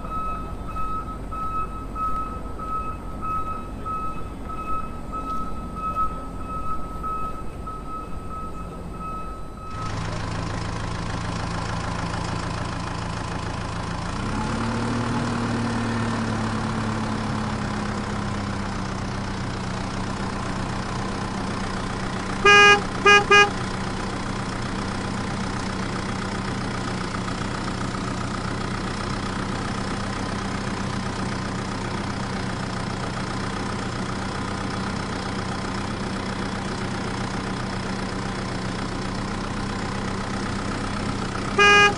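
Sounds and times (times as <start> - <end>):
vehicle engine idling: 0.0 - 41.9
horn short honks: 22.4 - 23.6, 41.5 - 41.9.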